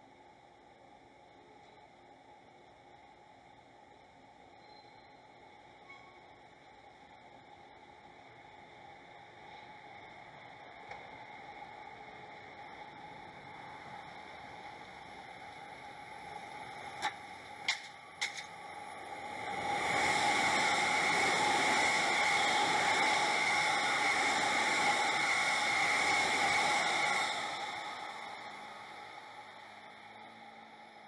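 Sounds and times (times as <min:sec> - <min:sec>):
train wheels on rails: 0:09.0 - 0:31.0.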